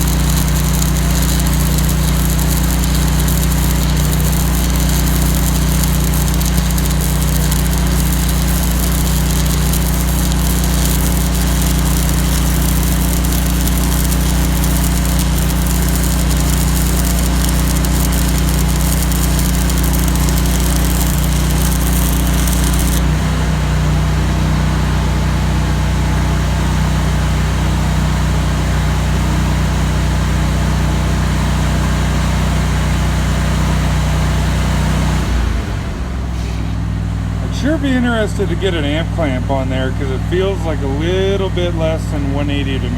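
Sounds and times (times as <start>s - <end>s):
welding arc crackling and hissing: 0.0s - 23.1s
welder engine drone: 0.0s - 24.4s.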